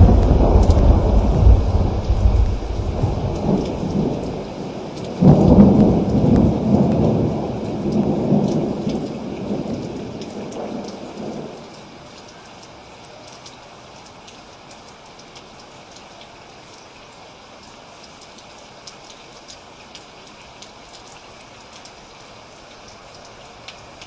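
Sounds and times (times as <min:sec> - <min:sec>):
sharp thunderclap: 0:00.0 - 0:10.8
thunder rumbling: 0:00.0 - 0:11.6
rain hiss: 0:00.0 - 0:24.0.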